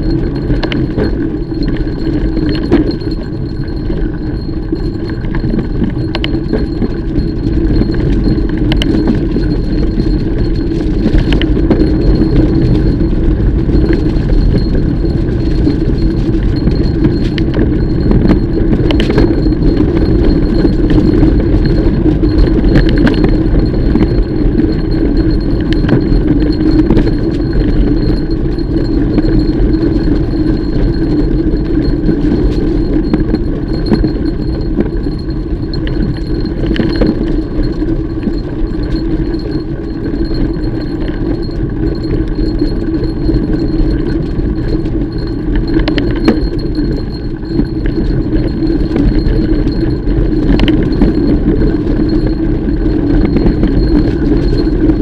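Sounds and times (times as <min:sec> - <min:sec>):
bike chain and frame rattling: 0:00.0 - 0:55.0
bike tyres rumbling: 0:00.0 - 0:55.0.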